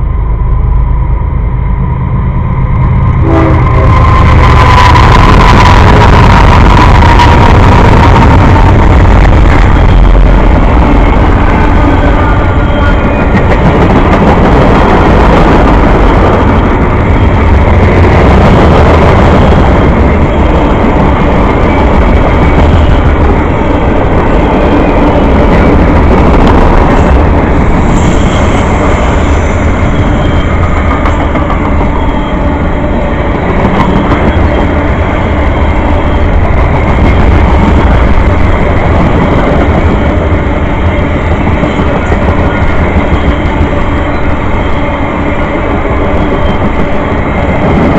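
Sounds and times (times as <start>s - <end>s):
train wheels rumbling on rail: 0.0s - 47.9s
high wheel squeal: 3.3s - 8.0s, 27.7s - 31.2s, 31.8s - 32.8s.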